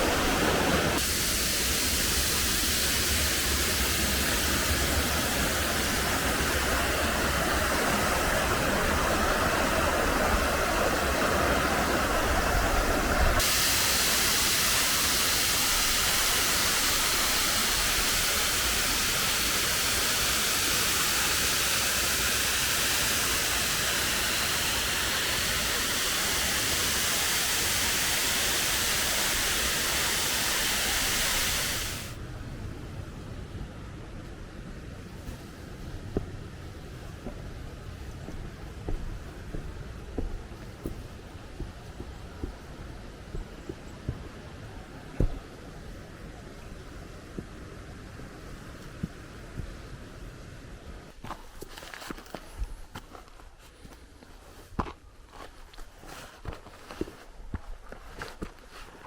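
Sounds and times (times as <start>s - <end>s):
waterfall rushing: 0.0s - 32.2s.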